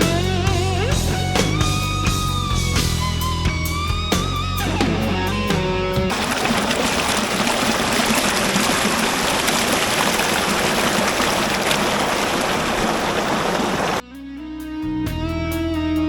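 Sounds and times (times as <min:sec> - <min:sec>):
waterfall rushing: 0:06.1 - 0:14.0.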